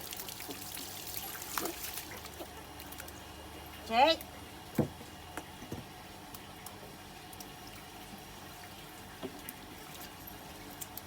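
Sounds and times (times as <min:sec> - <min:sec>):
splashes: 0:00.0 - 0:03.3
water trickling: 0:00.0 - 0:04.7, 0:06.0 - 0:11.0.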